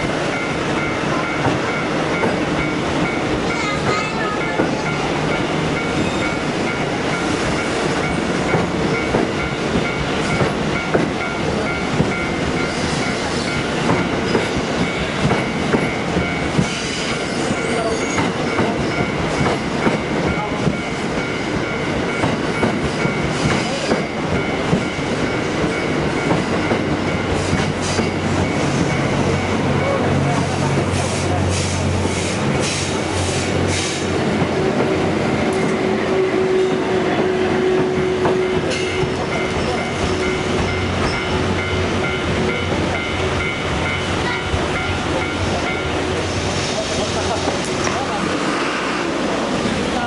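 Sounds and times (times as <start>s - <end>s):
train wheels clattering over rail joints: 7.2s - 29.5s.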